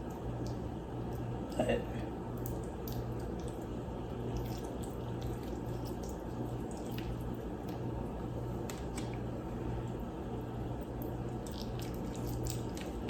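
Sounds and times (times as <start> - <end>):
steady low hum: 0.0 - 13.0
wet squishes of raw fish: 2.3 - 9.3, 10.8 - 13.0.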